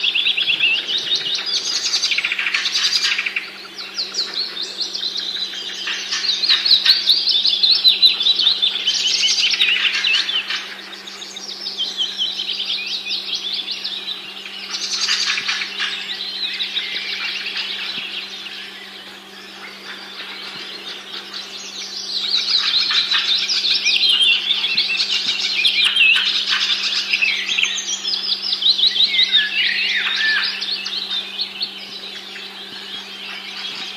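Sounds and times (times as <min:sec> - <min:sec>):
small birds chirping: 0:00.0 - 0:33.9
steady low hum: 0:00.0 - 0:33.9.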